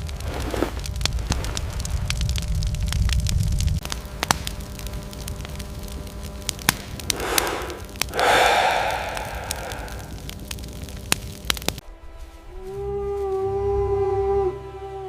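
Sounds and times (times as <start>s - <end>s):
fire crackling and popping: 0.0s - 11.8s
breathy rush: 7.1s - 10.4s.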